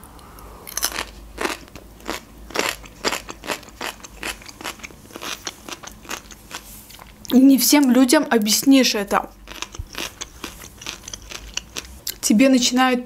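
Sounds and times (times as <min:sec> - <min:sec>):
person chewing crunchy food: 0:00.6 - 0:07.3, 0:09.2 - 0:12.2.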